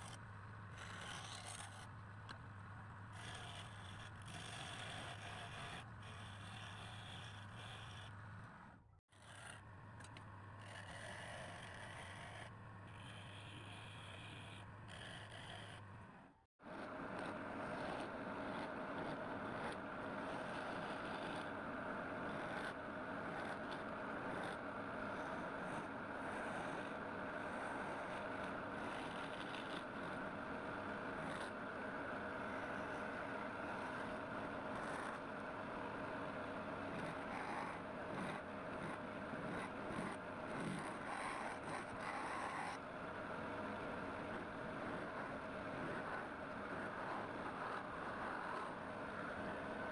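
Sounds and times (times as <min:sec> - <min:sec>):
turning tool cutting wood: 0:22.3 - 0:30.3.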